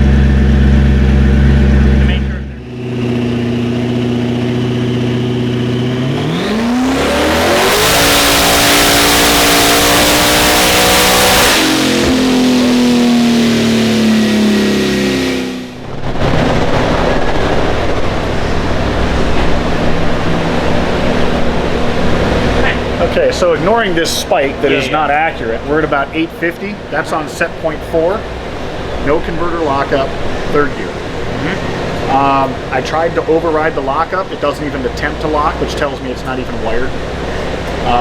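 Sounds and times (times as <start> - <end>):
car engine revving at full throttle: 0.0 - 38.0
steady rushing noise: 6.0 - 34.1.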